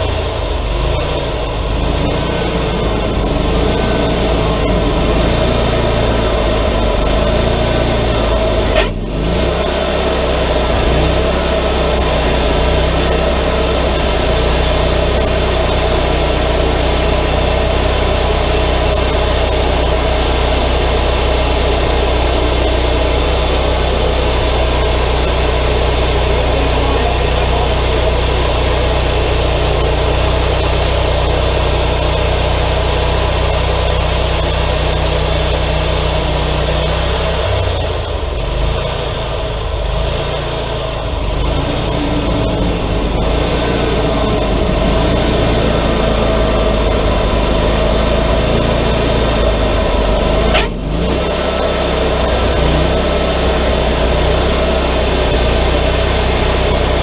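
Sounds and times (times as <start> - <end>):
sawmill engine and band saw drone: 0.0 - 57.0.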